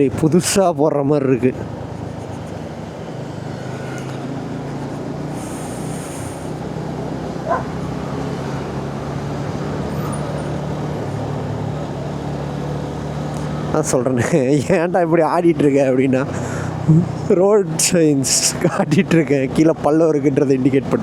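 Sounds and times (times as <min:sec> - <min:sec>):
road and wind noise: 0:00.0 - 0:21.0
motorcycle engine running: 0:01.5 - 0:13.8.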